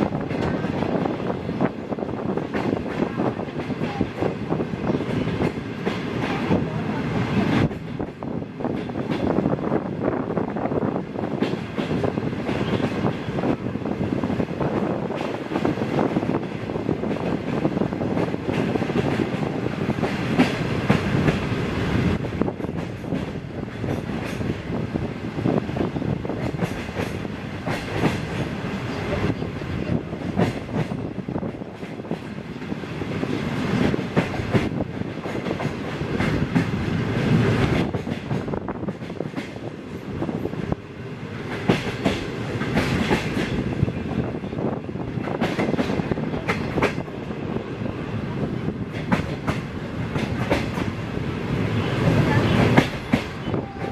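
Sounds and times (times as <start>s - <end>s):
train wheels rumbling on rails: 0.0s - 53.9s
wheels clacking over rail joints: 22.5s - 24.7s, 26.3s - 29.3s, 30.2s - 32.7s, 41.3s - 47.3s, 48.8s - 51.0s.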